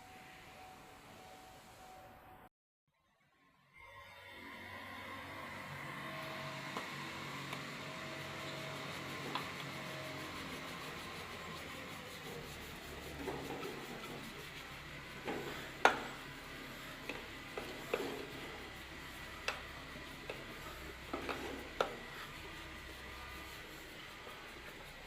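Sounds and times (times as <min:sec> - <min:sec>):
faint rubbing and scraping: 0:06.4 - 0:25.0.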